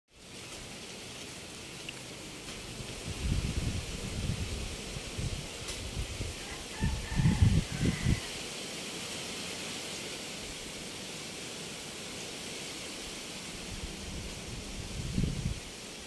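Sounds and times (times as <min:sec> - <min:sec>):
wind rushing through leaves: 0:00.1 - 0:16.0
wind gusts buffeting microphone: 0:02.7 - 0:08.2, 0:13.7 - 0:15.7.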